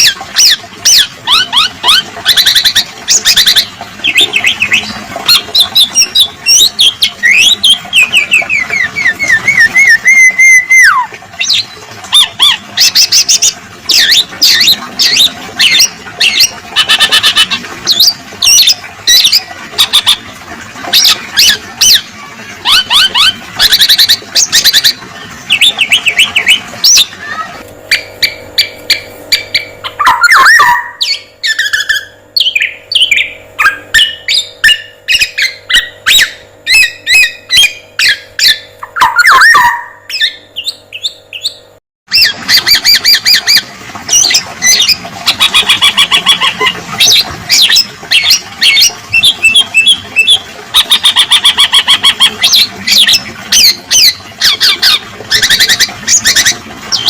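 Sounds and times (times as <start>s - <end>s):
harsh sliding squawks: 20.9s - 57.0s.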